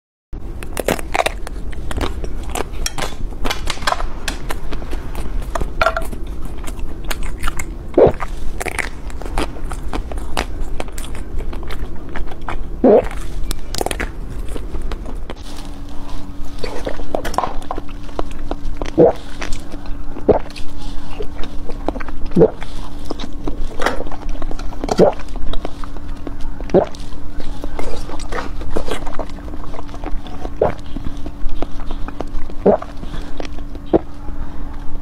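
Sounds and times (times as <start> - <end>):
wet chewing: 0.4 - 35.0
mouth clicks and smacks: 18.8 - 20.7, 26.7 - 27.0, 29.9 - 33.0.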